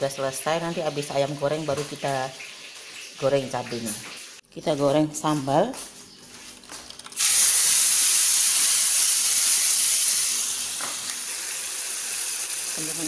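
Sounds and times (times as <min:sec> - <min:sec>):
chili paste sizzling in oil: 0:07.2 - 0:13.0.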